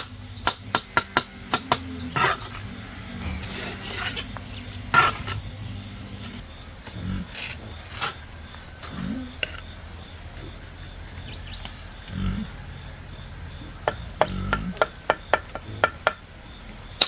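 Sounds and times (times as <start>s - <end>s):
high insect buzz: 0.0s - 17.0s
rough scraping strokes: 2.1s - 9.6s
low grunt-like sounds: 5.4s - 7.9s, 8.9s - 9.4s, 12.1s - 12.7s, 13.6s - 14.9s.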